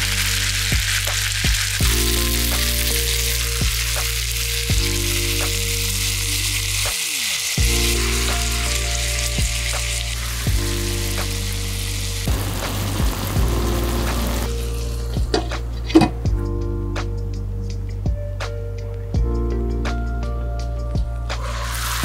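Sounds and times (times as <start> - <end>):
background music with low bass: 0.0 - 7.0, 7.6 - 22.0
chicken sizzling in oil: 0.0 - 15.4, 21.3 - 22.0.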